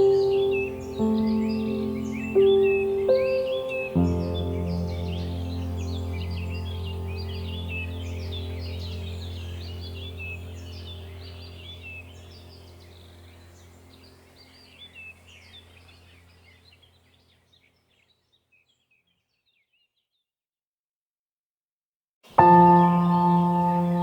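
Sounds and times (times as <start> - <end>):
birds chirping: 0.0 - 20.2, 22.3 - 24.0
low steady hum: 4.1 - 17.5.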